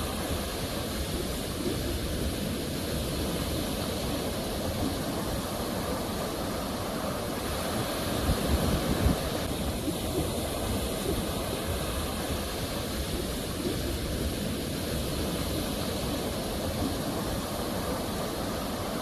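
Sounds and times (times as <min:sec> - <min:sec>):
ocean waves washing on shore: 0:00.0 - 0:19.0.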